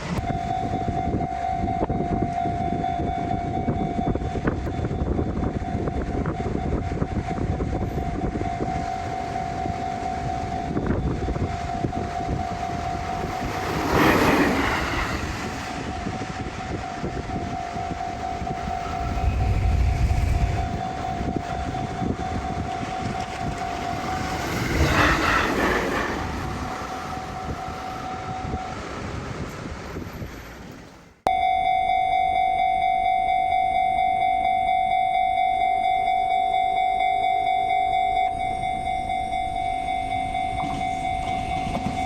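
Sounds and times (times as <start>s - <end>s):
train rumble: 0.0s - 31.2s, 37.0s - 42.0s
steady high tone: 0.2s - 28.8s, 31.3s - 42.0s
train rushing: 4.2s - 31.0s, 39.8s - 42.0s.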